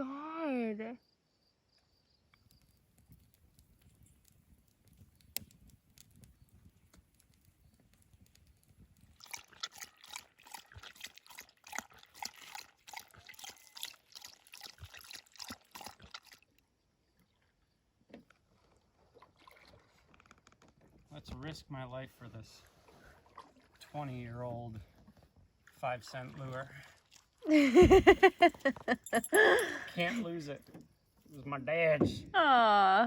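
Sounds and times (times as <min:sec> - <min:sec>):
water splashing and sloshing: 0:08.2 - 0:21.1, 0:22.4 - 0:31.3.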